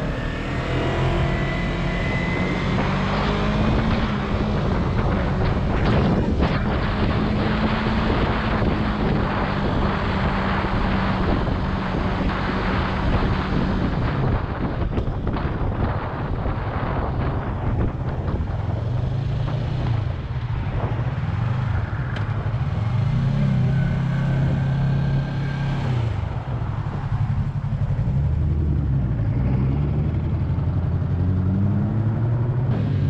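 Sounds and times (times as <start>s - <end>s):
motorcycle engine cruising: 0.0s - 33.0s
wind noise on microphone: 0.0s - 33.0s.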